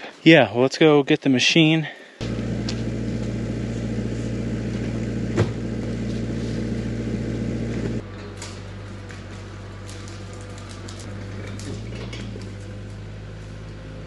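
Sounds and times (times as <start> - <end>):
excavator engine drone: 2.2 - 8.2, 8.8 - 14.0.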